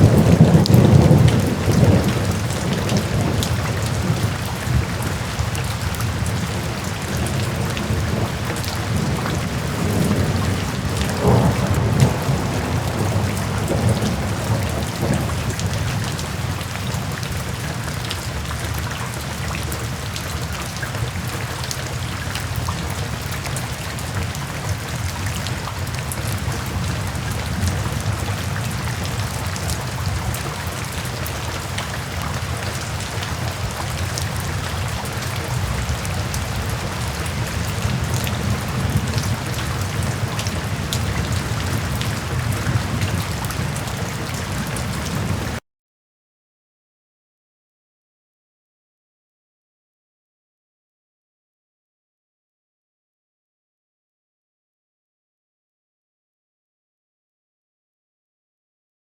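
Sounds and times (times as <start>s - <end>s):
rolling thunder rumble: 0.0s - 17.2s, 24.2s - 45.6s
steady rainfall pattering: 0.0s - 45.6s.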